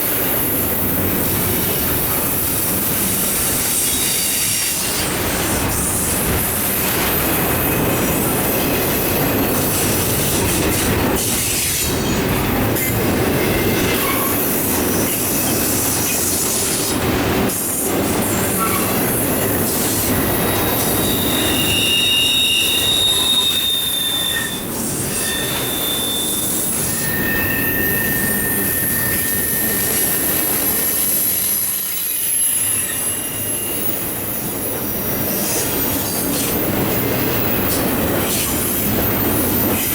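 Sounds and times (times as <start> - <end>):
train wheels rumbling on rail: 0.0 - 39.9
high-pitched wheel squeals: 20.0 - 35.0.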